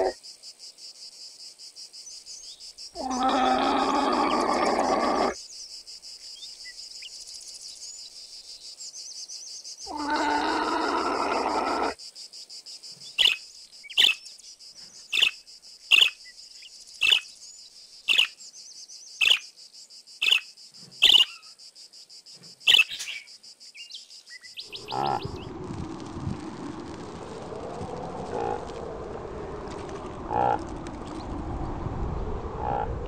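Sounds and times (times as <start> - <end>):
llama calling: 24.7 - 25.5
reindeer low grunting: 24.7 - 25.5, 27.9 - 30.9, 32.6 - 33.0.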